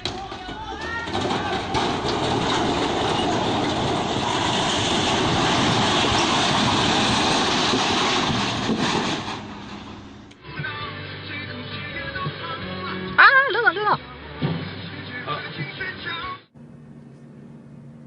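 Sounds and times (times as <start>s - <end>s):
heavy vehicle passing: 1.8s - 10.3s.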